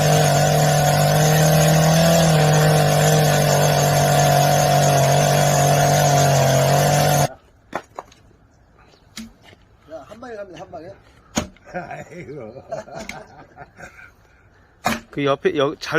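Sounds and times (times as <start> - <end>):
loud engine drone: 0.0 - 7.3.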